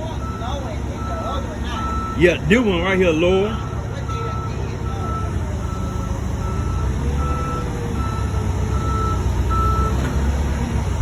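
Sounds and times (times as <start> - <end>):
forklift backup alarm beeping: 0.0 - 10.5
forklift engine rumble: 0.0 - 11.0.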